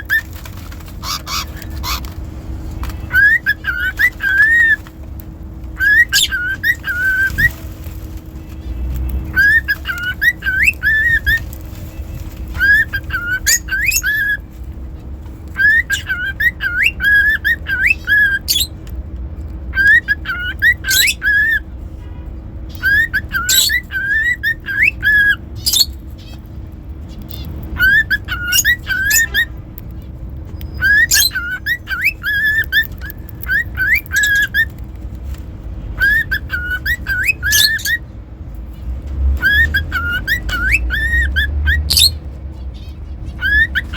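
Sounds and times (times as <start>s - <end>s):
cockatiel whistling: 0.0s - 0.4s, 1.0s - 2.1s, 2.9s - 4.9s, 5.7s - 7.6s, 9.2s - 11.5s, 12.5s - 14.5s, 15.5s - 18.8s, 19.7s - 21.7s, 22.7s - 26.3s, 27.3s - 29.6s, 30.5s - 34.8s, 36.0s - 38.1s, 39.4s - 42.2s, 43.3s - 43.9s.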